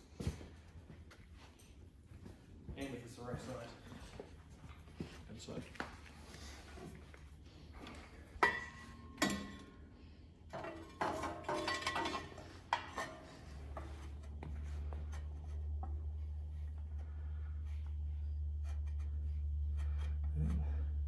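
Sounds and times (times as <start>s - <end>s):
steady low hum: 0.0s - 21.0s
metal plate clanking and scraping: 8.4s - 9.8s, 10.5s - 15.3s.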